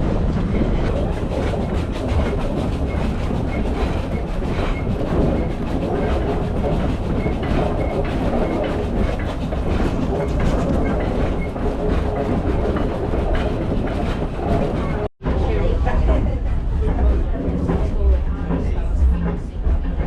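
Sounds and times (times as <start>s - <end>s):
train carriage rumbling: 0.0s - 20.0s
wheels clicking over rail joints: 0.3s - 15.1s.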